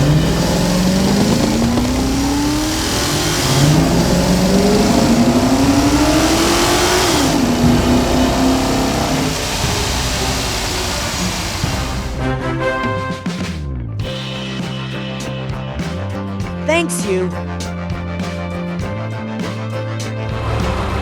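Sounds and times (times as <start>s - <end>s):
cartoon car engine revving: 0.0s - 12.2s.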